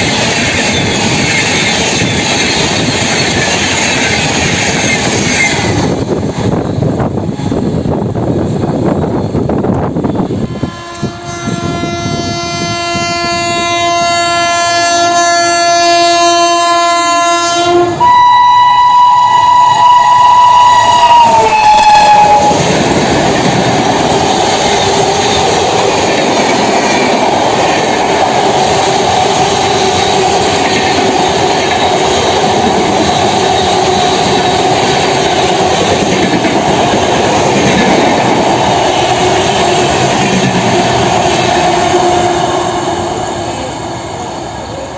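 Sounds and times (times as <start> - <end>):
train rumbling and clattering past: 0.0 - 44.9
train horn blasts: 10.3 - 22.8, 41.8 - 43.2.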